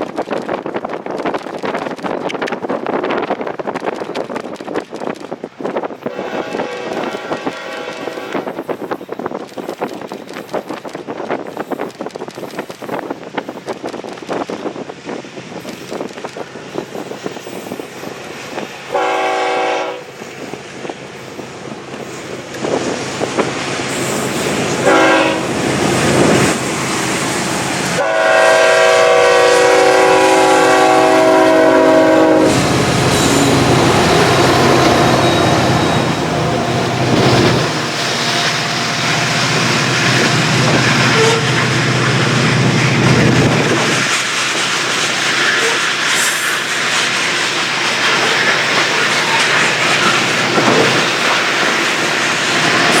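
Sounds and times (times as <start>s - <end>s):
train wheels clickety-clack on rails: 0.0s - 53.0s
train horn blasts: 6.1s - 8.5s, 18.9s - 20.1s, 24.8s - 25.5s, 28.0s - 36.6s, 41.0s - 41.6s
locomotive engines rumbling: 15.5s - 53.0s.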